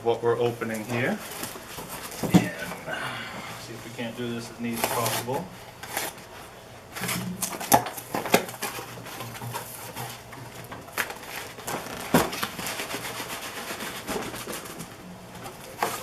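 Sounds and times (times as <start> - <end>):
cardboard rustling and scraping: 0.5 - 2.9, 3.7 - 16.0
sharp knocks of packaging: 7.0 - 13.0.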